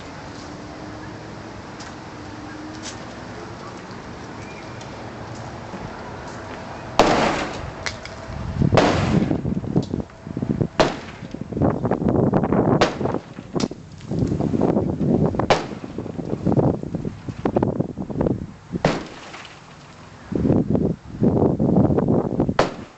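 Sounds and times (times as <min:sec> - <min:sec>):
wood cracking and banging: 0:07.0 - 0:08.2, 0:18.9 - 0:20.0.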